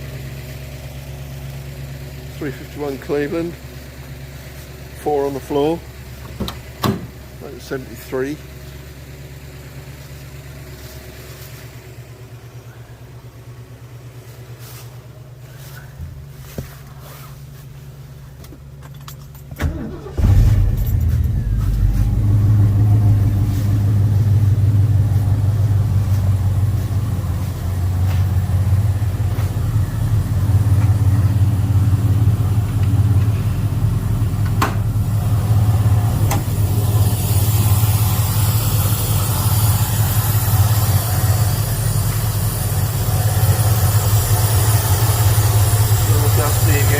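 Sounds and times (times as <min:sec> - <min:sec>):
car engine starting and idling: 0:00.0 - 0:46.9
low steady hum: 0:09.9 - 0:46.9.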